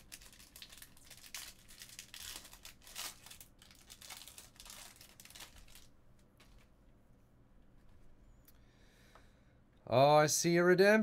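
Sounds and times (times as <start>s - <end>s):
card pack wrapper crinkling and tearing: 0.0s - 6.7s.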